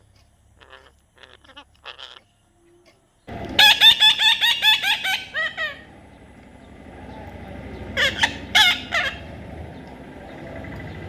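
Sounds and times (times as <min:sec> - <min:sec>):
parrot calling harshly: 0:00.6 - 0:02.3, 0:03.6 - 0:05.9, 0:07.9 - 0:09.3.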